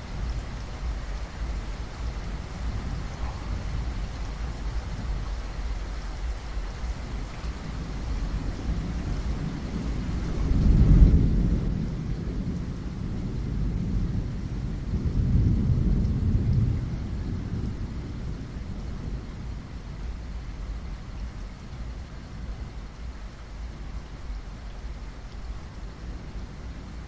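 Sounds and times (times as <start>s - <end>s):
steady rain: 0.0s - 27.0s
thunder rolling: 7.9s - 19.7s.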